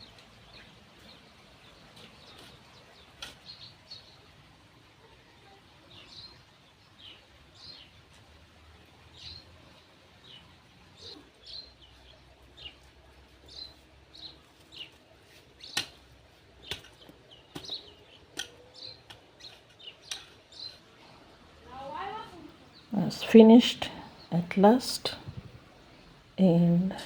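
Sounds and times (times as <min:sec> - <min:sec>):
birds chirping: 0:18.8 - 0:27.0.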